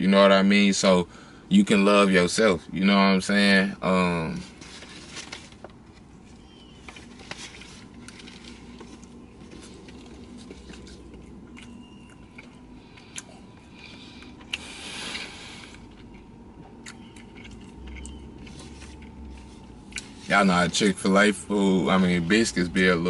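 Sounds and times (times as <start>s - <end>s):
person chewing a biscuit: 4.5s - 20.3s.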